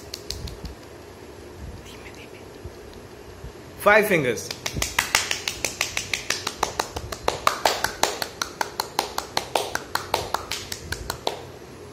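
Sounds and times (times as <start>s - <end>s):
rapid sharp hand claps: 0.0s - 0.8s, 4.4s - 11.5s.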